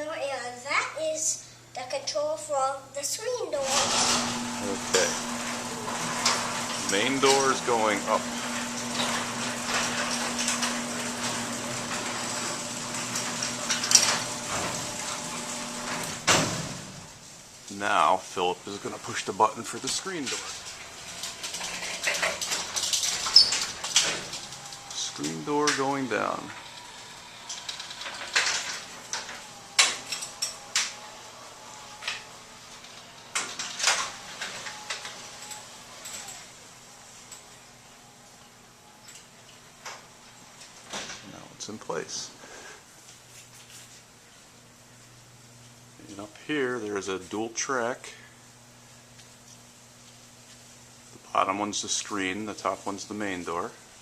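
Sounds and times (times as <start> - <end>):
garage door motor hum: 3.2 - 54.0
garage door clicking and rattling: 3.6 - 17.6, 18.7 - 41.4.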